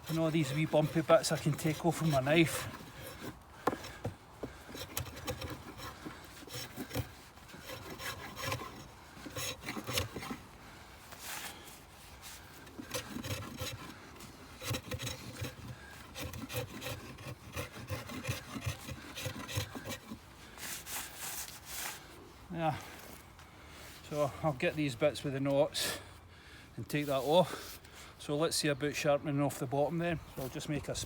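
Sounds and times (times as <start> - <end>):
knife scraping wooden stick: 0.0 - 10.4, 12.2 - 22.1.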